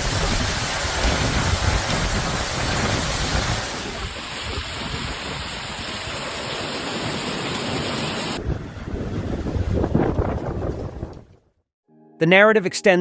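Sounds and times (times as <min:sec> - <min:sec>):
wind buffeting microphone: 0:00.0 - 0:06.1, 0:08.3 - 0:11.5
storm water rushing: 0:00.0 - 0:11.3.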